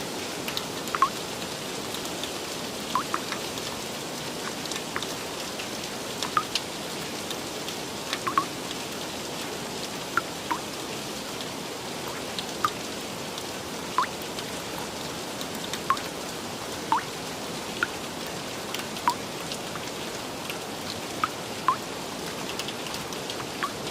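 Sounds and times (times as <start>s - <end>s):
heavy drops plinking: 3.0s - 3.3s, 8.3s - 8.5s.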